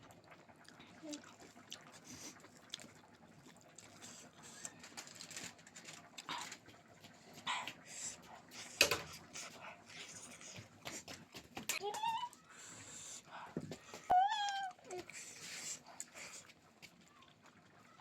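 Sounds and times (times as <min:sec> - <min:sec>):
person chewing and smacking food: 0:00.6 - 0:05.2, 0:06.0 - 0:12.5.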